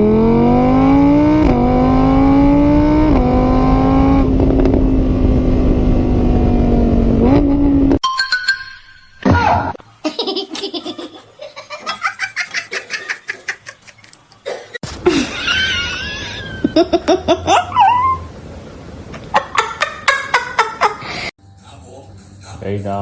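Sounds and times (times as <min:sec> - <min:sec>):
people laughing hard: 0:10.1 - 0:14.0, 0:15.1 - 0:17.7, 0:19.3 - 0:21.0.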